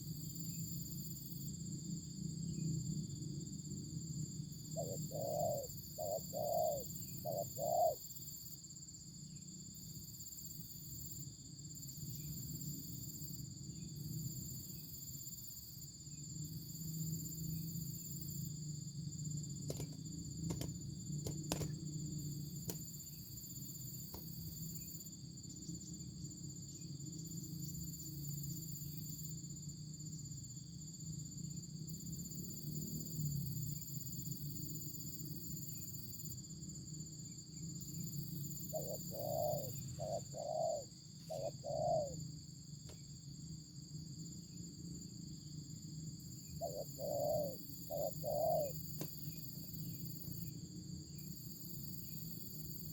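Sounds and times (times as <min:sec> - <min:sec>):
dove cooing: 0:04.8 - 0:08.0, 0:38.7 - 0:42.2, 0:46.6 - 0:48.8.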